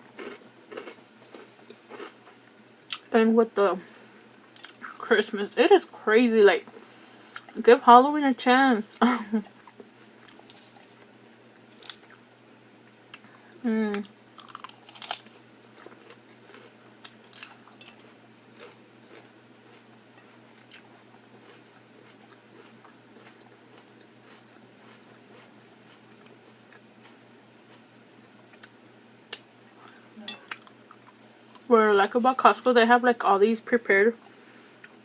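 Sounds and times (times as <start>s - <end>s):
crunchy bites: 0.0s - 2.2s, 11.7s - 12.2s, 14.3s - 19.9s
person chewing food: 0.0s - 3.1s, 9.4s - 11.1s, 14.3s - 31.6s.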